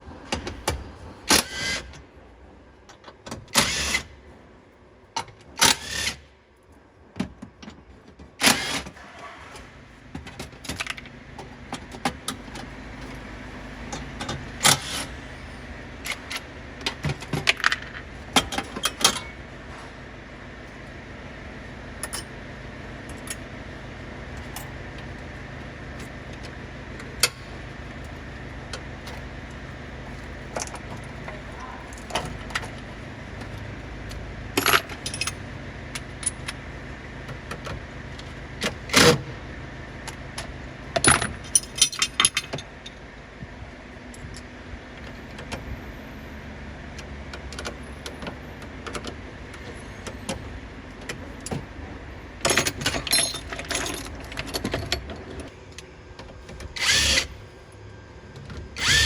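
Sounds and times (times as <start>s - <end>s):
steady low hum: 9.0s - 59.0s
metal tools clinking and clanking: 10.2s - 20.0s, 22.0s - 22.4s, 29.0s - 33.6s, 34.6s - 35.4s, 41.0s - 43.0s, 52.4s - 55.5s.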